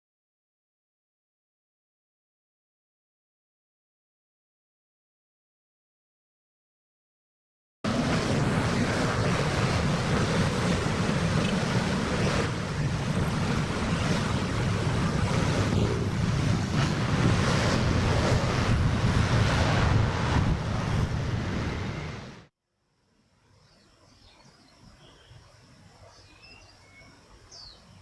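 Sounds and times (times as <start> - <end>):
wind on microphone: 7.9 - 22.5.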